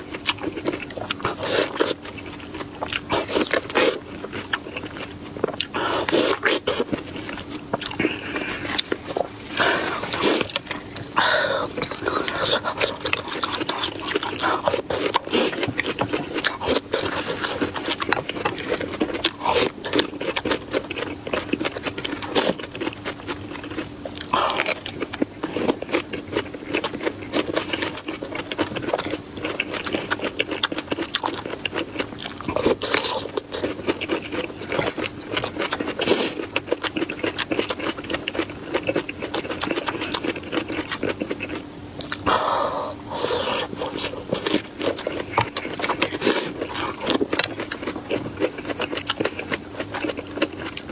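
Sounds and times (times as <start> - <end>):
person chewing food: 0.0 - 50.9.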